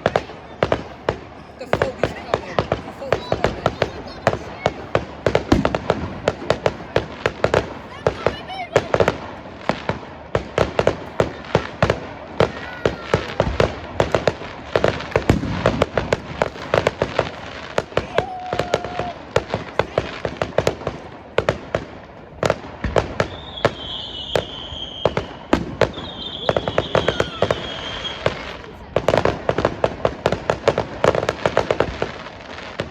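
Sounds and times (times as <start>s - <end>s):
fireworks bangs and crackles: 0.0s - 32.9s
fireworks whistling: 0.0s - 32.9s.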